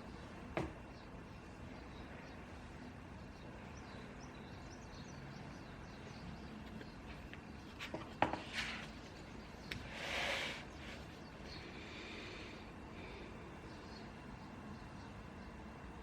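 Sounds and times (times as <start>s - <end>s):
faint bird chirps: 8.8s - 15.7s.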